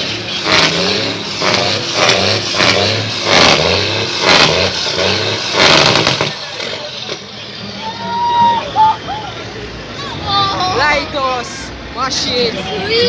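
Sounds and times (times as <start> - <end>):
truck engine revving: 0.0 - 7.8.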